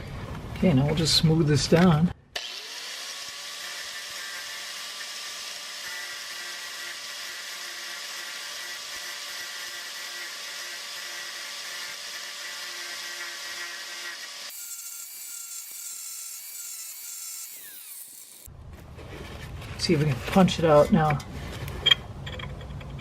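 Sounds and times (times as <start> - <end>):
angle grinder grinding metal: 2.4 - 18.5.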